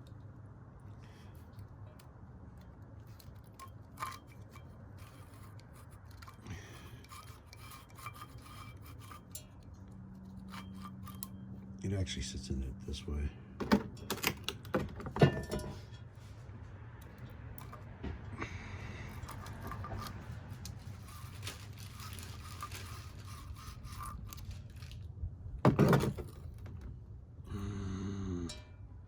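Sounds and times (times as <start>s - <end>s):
metal parts scraping and clinking: 1.3s - 11.7s, 13.6s - 16.3s, 17.0s - 17.9s, 19.1s - 25.0s, 25.7s - 26.8s.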